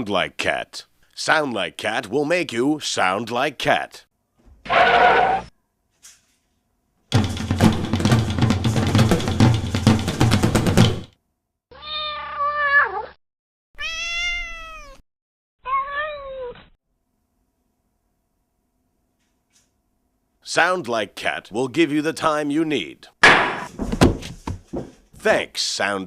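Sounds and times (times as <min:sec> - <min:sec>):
loud clattering: 0:07.1 - 0:11.1
cat meowing: 0:11.7 - 0:13.2, 0:13.8 - 0:15.0, 0:15.6 - 0:16.8.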